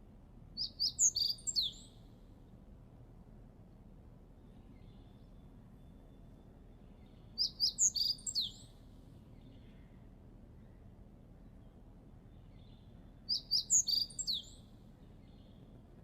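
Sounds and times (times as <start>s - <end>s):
low steady background noise: 0.0s - 16.0s
songbird chirping: 0.6s - 2.6s, 4.3s - 16.0s.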